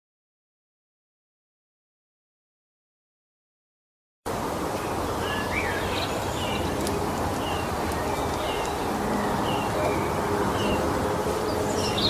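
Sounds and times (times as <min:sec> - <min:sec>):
outdoor background noise: 0:04.3 - 0:12.0
small birds chirping: 0:04.7 - 0:12.0.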